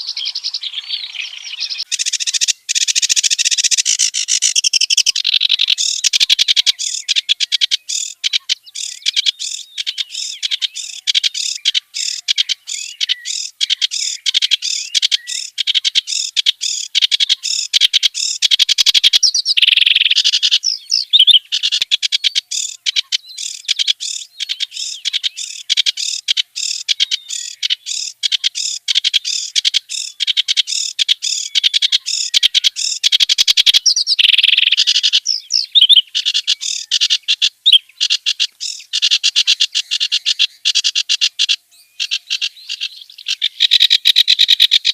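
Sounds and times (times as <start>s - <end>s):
warbler harsh chattering song: 0.0s - 44.9s.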